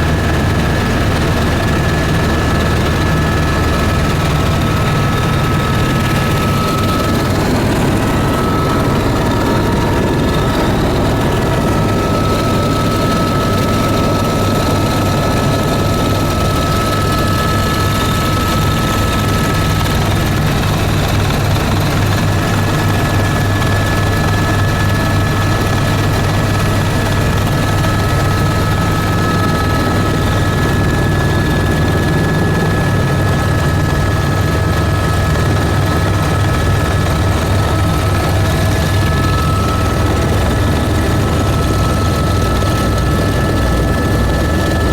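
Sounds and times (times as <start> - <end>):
high engine whine: 0.0 - 20.4
aircraft engines droning: 0.0 - 44.9.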